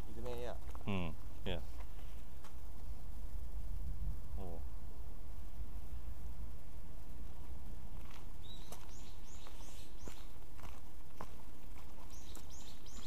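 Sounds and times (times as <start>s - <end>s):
footsteps on dirt path: 0.0s - 3.0s, 7.2s - 13.0s
small bird high call: 8.4s - 10.4s, 12.1s - 13.0s.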